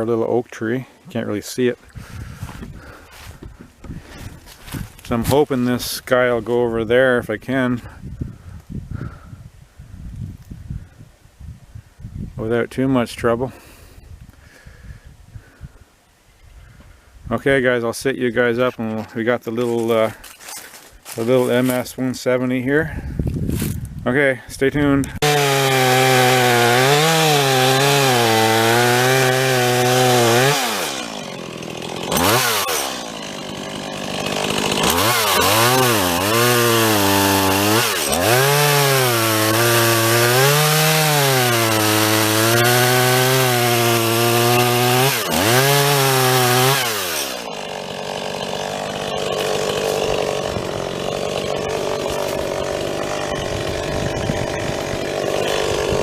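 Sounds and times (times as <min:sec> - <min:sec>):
chainsaw cutting wood: 0:01.9 - 0:05.8, 0:25.1 - 0:56.0.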